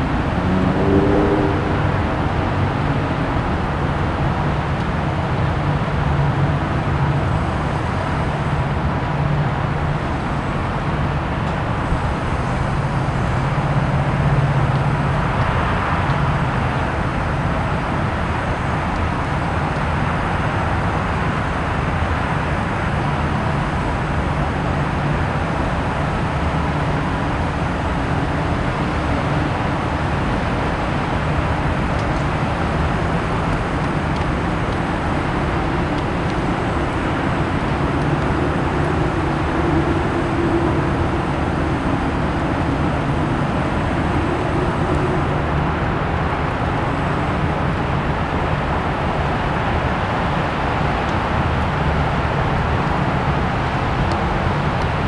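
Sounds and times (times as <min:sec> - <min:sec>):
low hum: 0:00.0 - 0:19.7, 0:23.0 - 0:50.0
outdoor rumble and hiss: 0:00.0 - 0:55.0.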